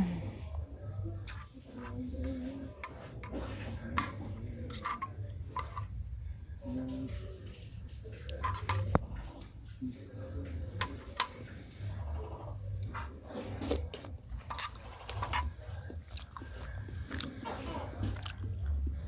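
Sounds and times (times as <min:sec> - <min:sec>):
person chewing noodles: 0:12.6 - 0:19.0.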